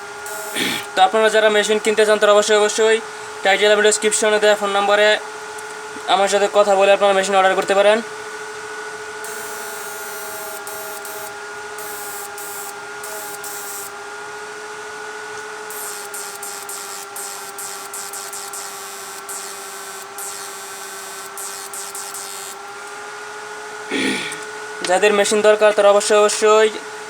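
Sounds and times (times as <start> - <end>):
hiss: 0.0 - 0.9, 9.2 - 13.9, 15.7 - 22.6
electrical whine from inverter: 0.0 - 27.0
electrical crackling: 0.3 - 0.9, 9.3 - 13.9, 15.7 - 22.7.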